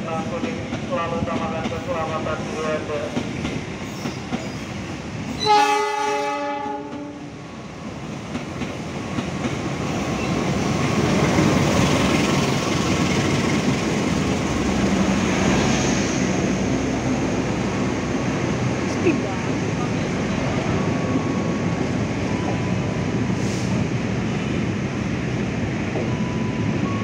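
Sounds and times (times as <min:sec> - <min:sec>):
train horn: 0:05.4 - 0:07.3
locomotive engine and wheels passing: 0:07.5 - 0:23.3.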